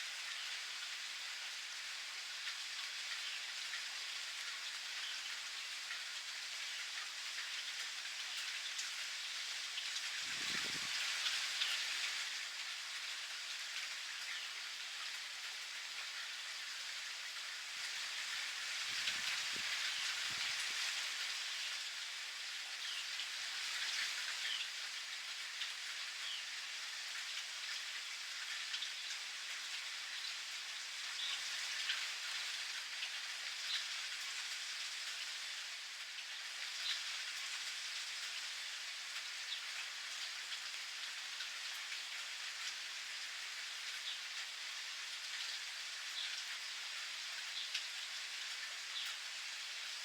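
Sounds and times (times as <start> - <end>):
rain pattering: 0.0 - 50.0.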